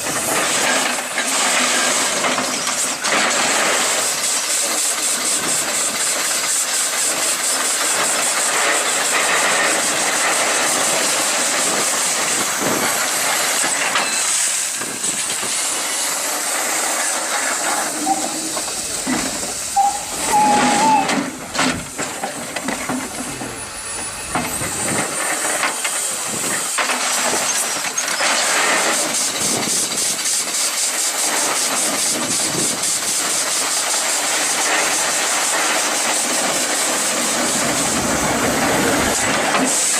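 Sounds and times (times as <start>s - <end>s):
steam hissing: 0.0s - 39.9s
brief squeal: 17.7s - 18.8s, 19.7s - 21.3s.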